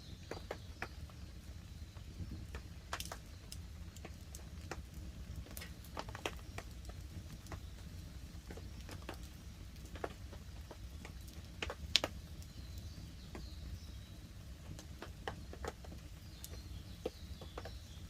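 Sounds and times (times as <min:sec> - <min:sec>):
campfire crackling and popping: 0:00.0 - 0:18.0
light rain on a tarp: 0:00.0 - 0:18.0.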